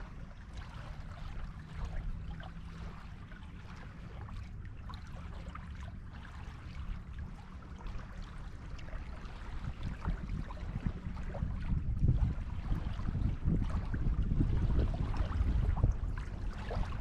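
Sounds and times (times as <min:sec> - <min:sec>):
small waves washing on a beach: 0:00.0 - 0:17.0
low rumble: 0:09.4 - 0:17.0.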